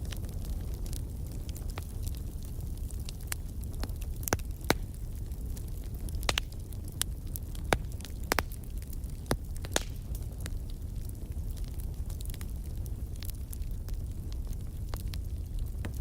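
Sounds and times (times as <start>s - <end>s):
firewood crackling and popping: 0.0s - 16.0s
low steady fire rumble: 0.0s - 16.0s.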